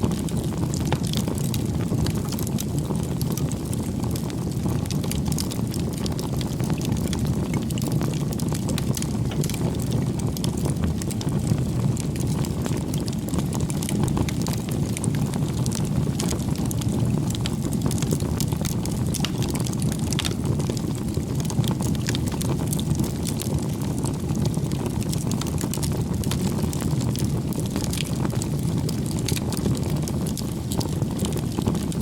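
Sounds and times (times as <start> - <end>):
bonfire flame rushing: 0.0 - 32.0
burning wood crackling: 0.0 - 32.0.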